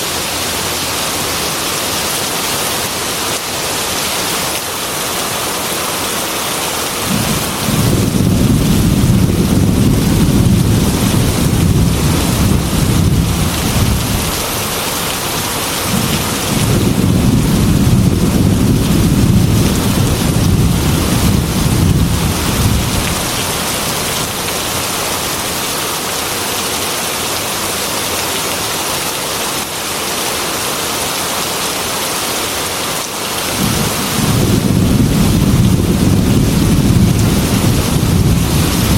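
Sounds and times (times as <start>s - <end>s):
heavy rain on a metal roof: 0.0s - 38.9s
thunder rumbling: 7.0s - 24.8s, 33.5s - 38.9s.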